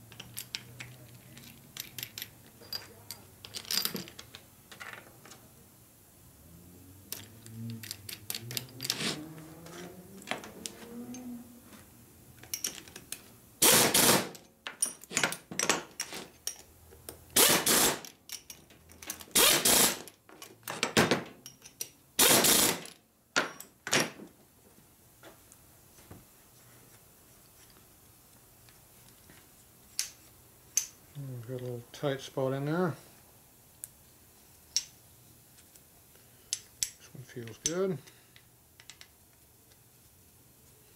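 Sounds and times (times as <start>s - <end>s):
small metallic clicks and knocks: 0.1s - 5.4s, 7.1s - 9.0s, 14.4s - 17.3s, 18.0s - 19.3s, 20.1s - 22.0s, 36.5s - 39.8s.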